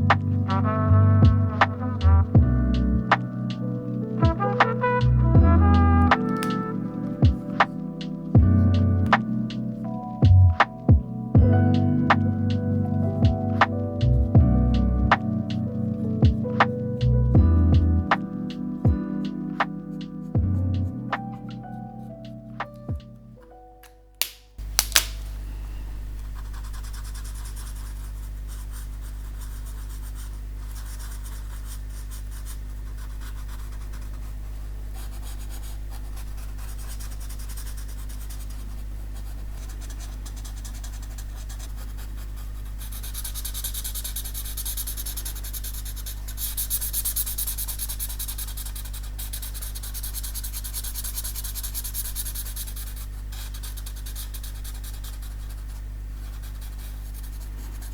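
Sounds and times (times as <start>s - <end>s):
low hum: 0.0s - 18.4s
pen scratching on paper: 5.8s - 8.3s, 26.2s - 57.9s
sharp click: 6.4s - 6.6s, 23.8s - 25.4s.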